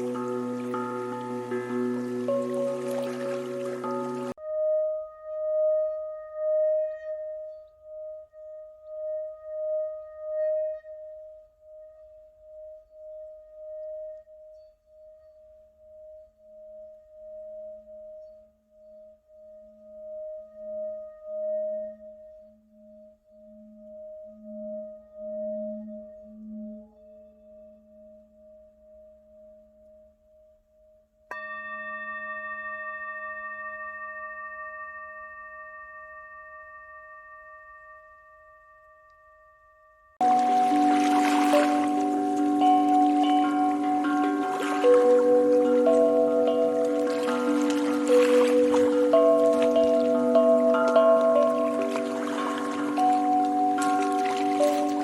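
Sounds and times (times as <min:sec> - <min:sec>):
singing bowl ringing: 0:00.0 - 0:29.7, 0:31.3 - 0:55.0
singing bowl strike: 0:31.3 - 0:55.0.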